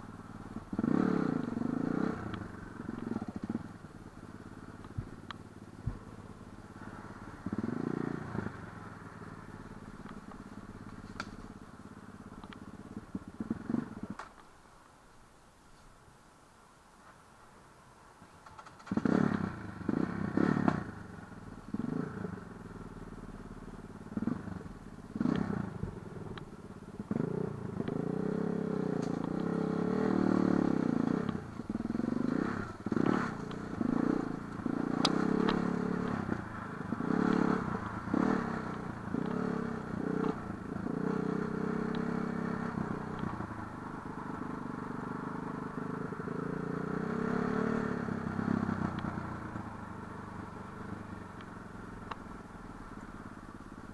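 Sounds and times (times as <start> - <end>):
motorcycle engine revving: 0.0 - 14.3, 18.7 - 53.9
knocks and clatter from bike: 18.4 - 19.5.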